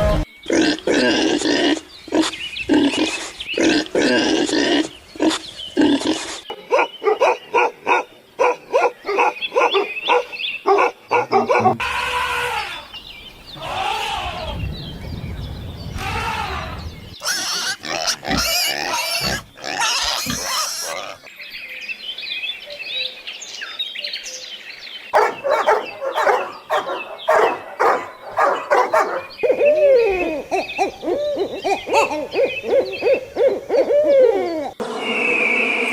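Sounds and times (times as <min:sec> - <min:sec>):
farm animal calls: 0:25.2 - 0:29.6.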